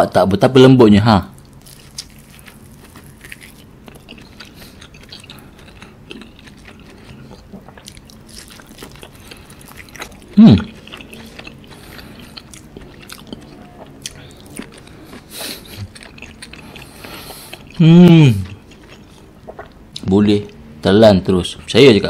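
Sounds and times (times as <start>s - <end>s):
chewing meat: 1.3s - 20.6s
person humming: 17.8s - 18.5s.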